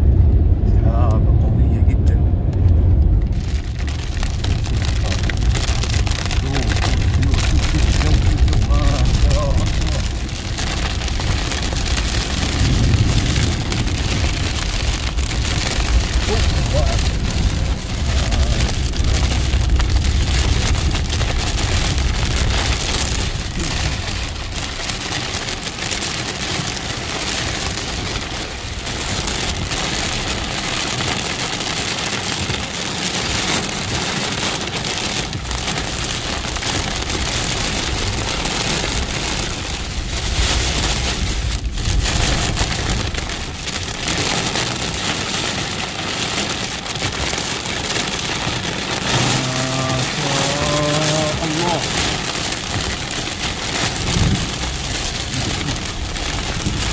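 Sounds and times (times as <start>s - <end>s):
low rumble: 0.0s - 31.0s, 35.2s - 45.4s
heavy rain pouring: 0.0s - 56.9s.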